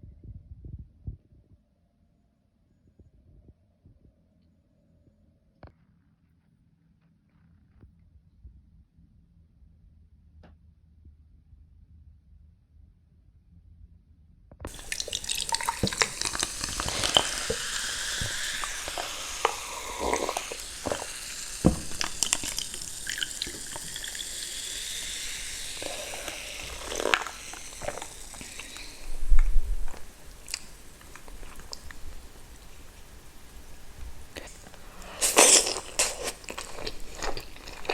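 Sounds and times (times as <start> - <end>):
wet eating mouth noises: 14.7 - 37.9.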